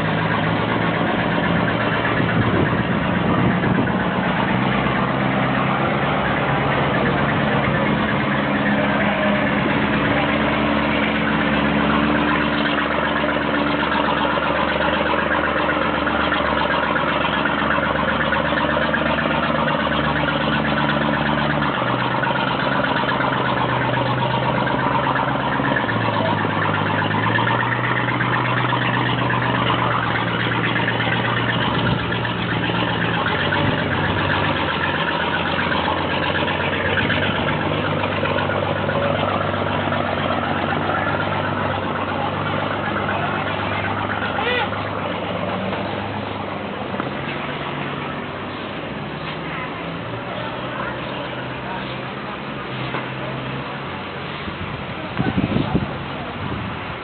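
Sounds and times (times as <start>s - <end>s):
ferry engine running: 0.0s - 57.0s
water wash: 0.0s - 57.0s.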